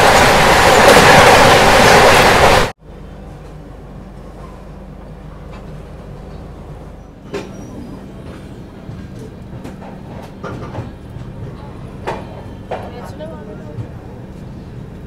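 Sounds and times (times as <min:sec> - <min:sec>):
train rumbling: 0:00.0 - 0:15.0
scattered clicks and knocks: 0:08.3 - 0:14.0.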